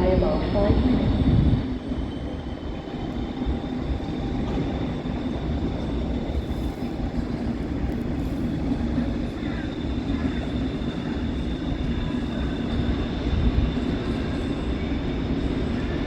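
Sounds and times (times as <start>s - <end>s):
train rumble and hiss: 0.0s - 16.0s.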